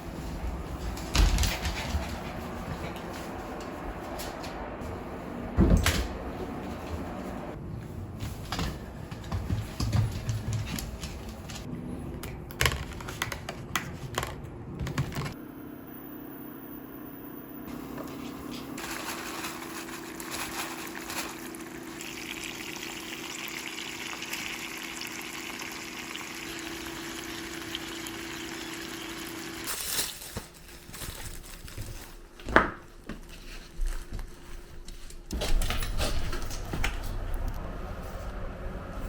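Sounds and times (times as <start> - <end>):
steady liquid sound: 20.9 - 29.6
low hum: 35.3 - 39.0.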